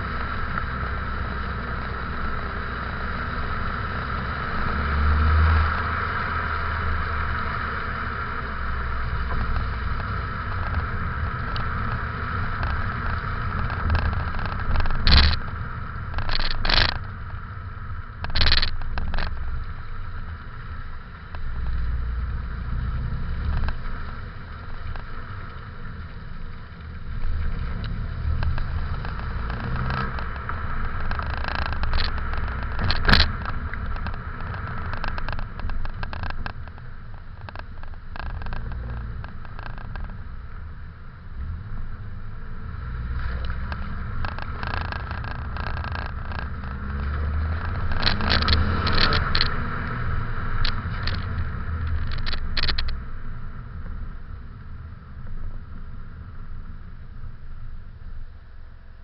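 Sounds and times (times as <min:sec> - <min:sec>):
car engine rumbling: 0:00.0 - 0:59.0
sharp scrapes or knocks: 0:09.2 - 0:15.5, 0:16.1 - 0:17.1, 0:18.2 - 0:19.5, 0:27.8 - 0:40.2, 0:42.9 - 0:53.0.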